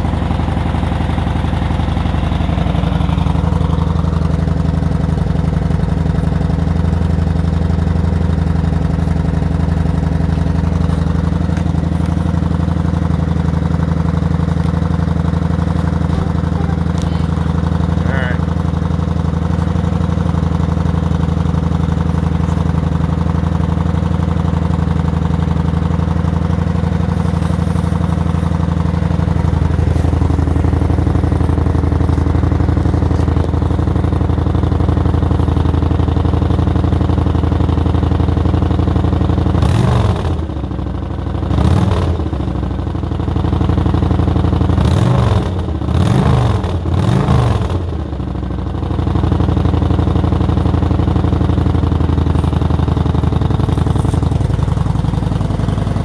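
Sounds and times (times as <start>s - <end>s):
motorcycle engine idling: 0.0s - 56.0s
motorcycle throttle blips: 0.5s - 38.6s.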